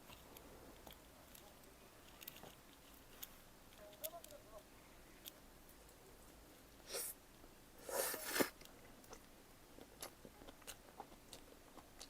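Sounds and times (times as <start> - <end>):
soft chewing: 0.0 - 7.1, 7.8 - 12.0
rustle: 0.0 - 9.2.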